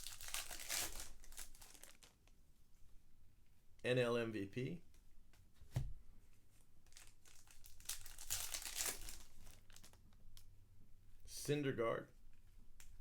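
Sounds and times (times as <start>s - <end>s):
wrapper tearing and crinkling: 0.0s - 2.2s, 6.9s - 10.0s.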